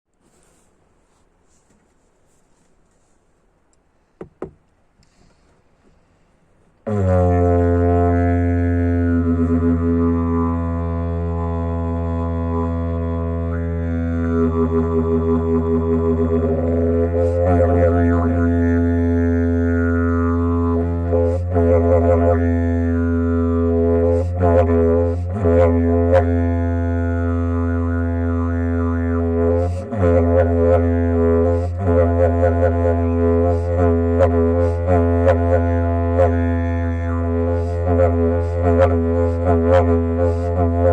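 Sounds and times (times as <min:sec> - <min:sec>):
didgeridoo drone: 0:06.8 - 0:40.9.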